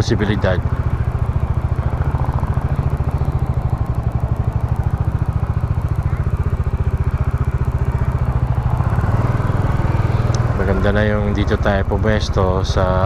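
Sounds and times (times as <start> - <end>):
motorcycle engine chugging: 0.0 - 13.0.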